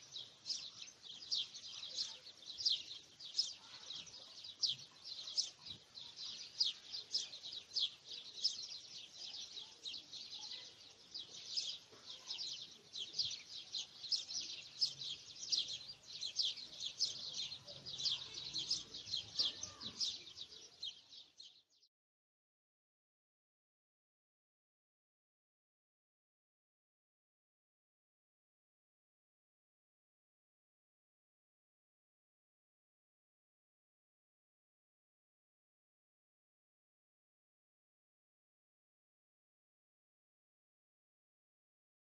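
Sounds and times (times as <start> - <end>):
birds chirping: 0.0 - 21.9.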